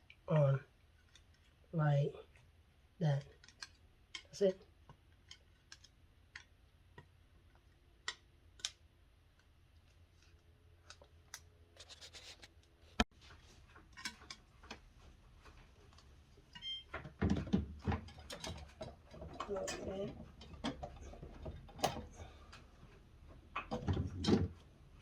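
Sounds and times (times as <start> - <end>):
plastic and metal parts clicking: 3.2 - 4.3, 4.9 - 8.8
parts clattering: 13.2 - 25.0.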